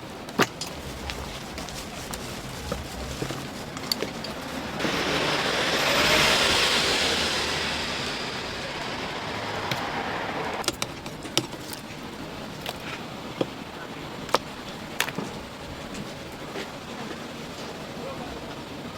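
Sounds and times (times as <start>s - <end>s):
oil sizzling in deep fryer: 2.1s - 10.6s.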